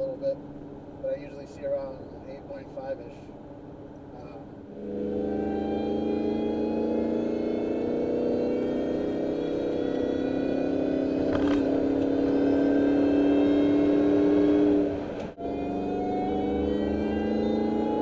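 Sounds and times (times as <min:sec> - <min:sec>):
supercharger whine: 0:00.0 - 0:18.0
engine accelerating: 0:04.2 - 0:18.0.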